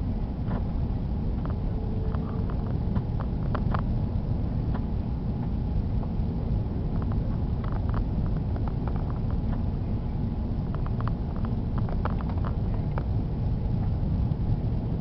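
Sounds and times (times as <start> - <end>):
airplane cabin rumble: 0.0 - 15.0
light clicks and rattles: 1.3 - 3.9, 6.9 - 9.7, 10.6 - 14.7.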